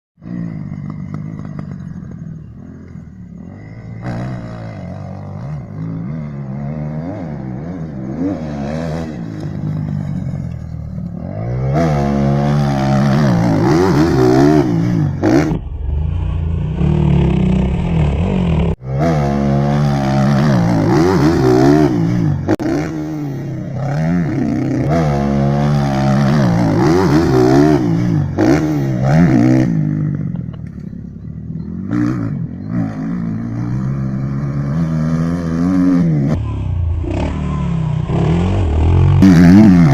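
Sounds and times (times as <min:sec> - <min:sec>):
dirt bike engines revving: 0:00.2 - 0:39.9.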